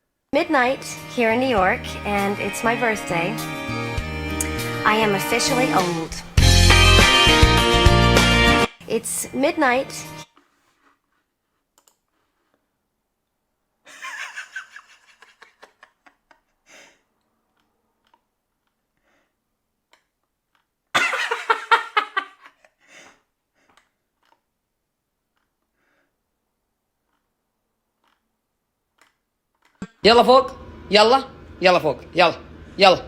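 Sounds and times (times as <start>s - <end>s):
person laughing: 13.9s - 16.5s, 21.0s - 22.7s.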